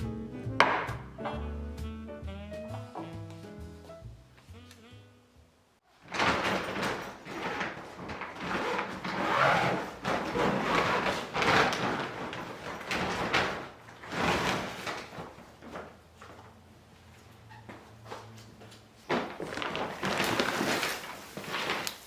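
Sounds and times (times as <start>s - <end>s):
rustling and scraping: 6.0s - 22.0s.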